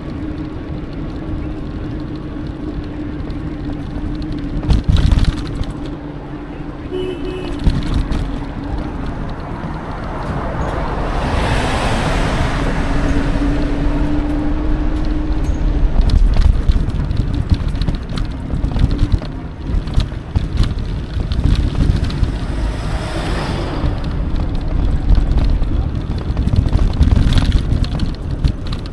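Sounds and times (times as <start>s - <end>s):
bike rattling clicks and knocks: 0.0s - 11.0s, 14.0s - 22.5s, 24.4s - 28.9s
wind rushing over microphone: 0.0s - 28.9s
tyre rumble on trail: 12.9s - 28.9s.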